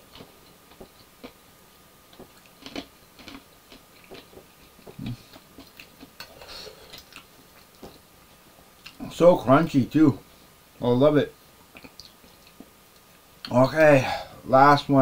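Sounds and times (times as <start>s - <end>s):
chewing crunchy food: 0.0s - 1.4s, 2.1s - 9.1s, 11.7s - 13.6s.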